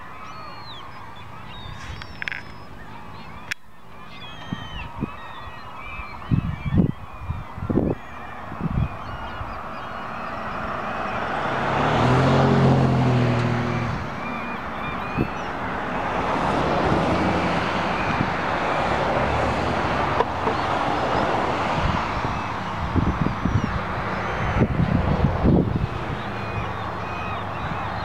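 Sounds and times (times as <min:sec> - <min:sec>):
background traffic: 0:00.0 - 0:28.0
small birds chirping: 0:00.0 - 0:28.0
motor vehicle passing close: 0:08.5 - 0:28.0.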